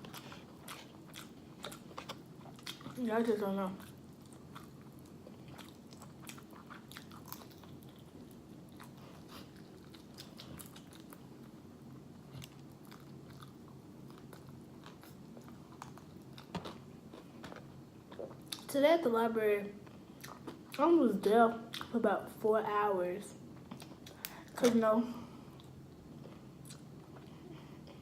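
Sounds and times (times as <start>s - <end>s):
chewing fried chicken: 0.0s - 18.7s, 19.8s - 20.8s
low room hum: 0.0s - 28.0s.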